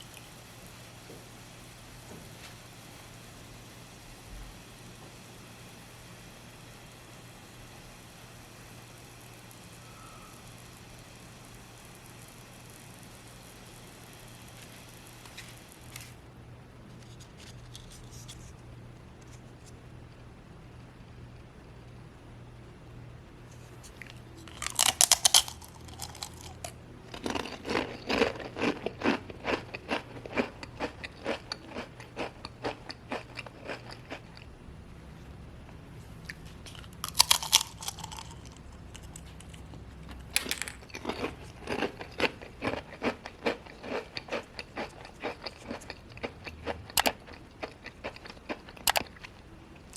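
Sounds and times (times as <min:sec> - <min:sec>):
crisp cookie crunching: 0:23.6 - 0:34.5, 0:36.2 - 0:49.9.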